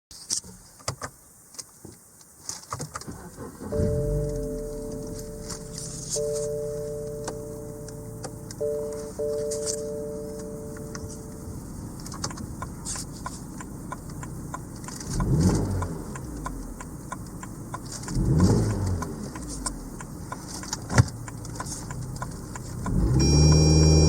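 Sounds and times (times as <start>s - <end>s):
car engine starting and idling: 3.0s - 24.0s
high electronic chime: 3.7s - 11.8s.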